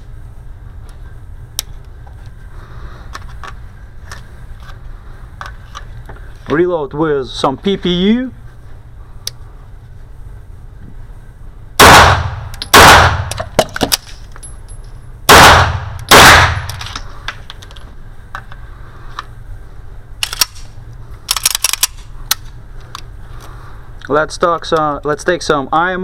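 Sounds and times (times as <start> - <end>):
pistol shots with echo: 11.8 - 13.5, 15.3 - 16.8
metallic clicks of reloading: 20.2 - 22.5.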